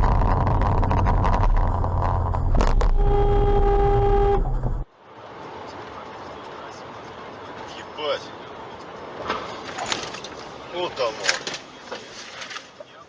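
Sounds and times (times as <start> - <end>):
car engine and road rumble: 0.0 - 13.0
car horn: 2.6 - 4.8.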